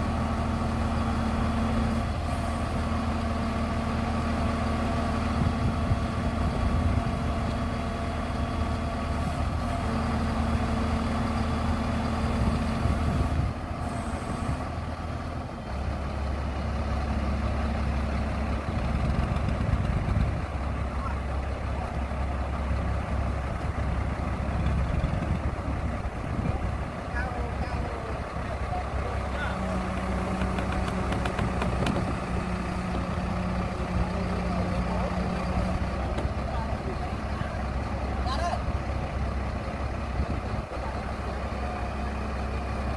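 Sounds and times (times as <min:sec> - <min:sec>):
heavy engine droning: 0:00.0 - 0:42.9.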